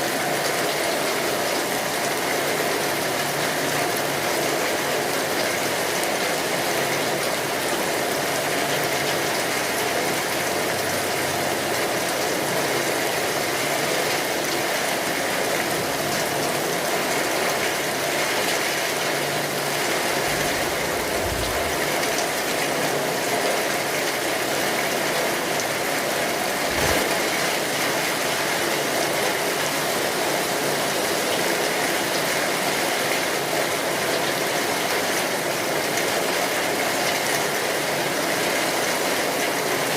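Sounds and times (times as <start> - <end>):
steady rainfall: 0.0 - 39.9
low rumbles: 20.0 - 22.6.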